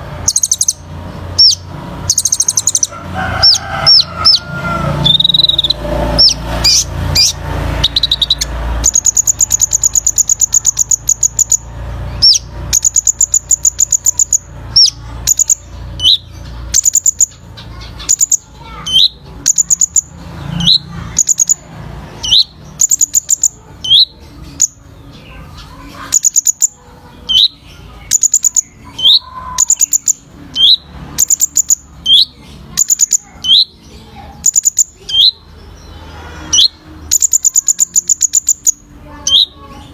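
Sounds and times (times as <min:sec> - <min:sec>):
sunbird high-pitched trilling song: 0:00.0 - 0:39.9.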